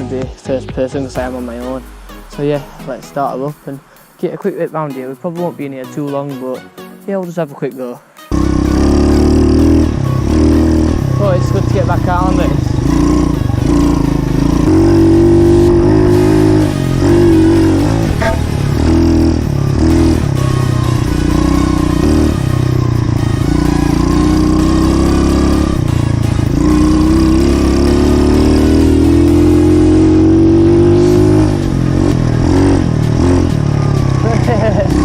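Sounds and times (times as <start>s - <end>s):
motorbike engine revving: 8.3s - 35.0s.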